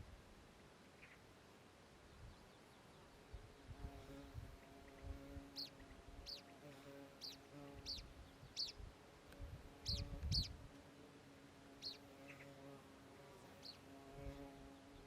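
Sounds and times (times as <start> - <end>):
bird chirping: 0.9 - 1.3, 5.6 - 6.6, 7.2 - 8.8, 9.8 - 10.5, 11.8 - 12.6, 13.6 - 13.8
flying insect buzzing: 3.4 - 15.0.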